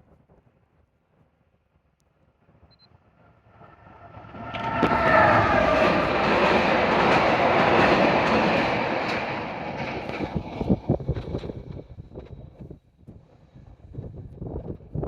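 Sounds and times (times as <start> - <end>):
train passing at speed: 1.6 - 14.8
rail joint clicks: 4.5 - 12.6.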